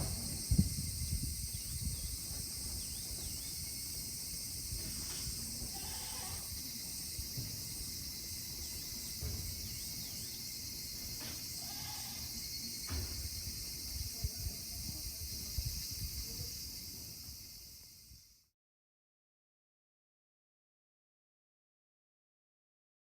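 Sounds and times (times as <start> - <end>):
insects droning: 0.0 - 18.5
soft thumps and knocks: 9.2 - 9.8.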